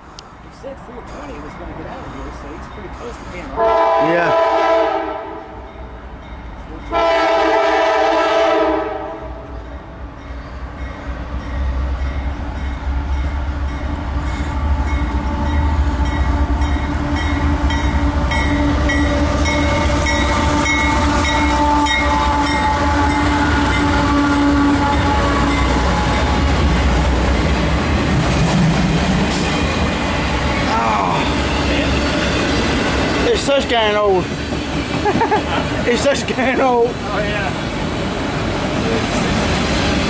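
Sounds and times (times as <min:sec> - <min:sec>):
diesel locomotive engines rumbling: 0:00.0 - 0:40.0
locomotive air horn: 0:03.5 - 0:05.6, 0:06.9 - 0:09.5, 0:17.5 - 0:26.7.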